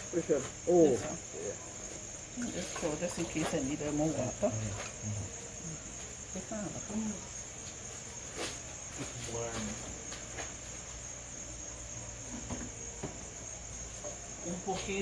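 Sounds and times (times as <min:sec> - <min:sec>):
faint voices: 0:00.0 - 0:07.5
crickets trilling: 0:00.0 - 0:15.0.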